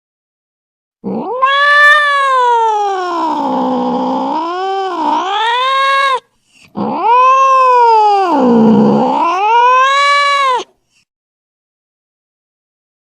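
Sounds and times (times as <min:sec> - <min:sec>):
cat yowling: 0:01.0 - 0:10.7.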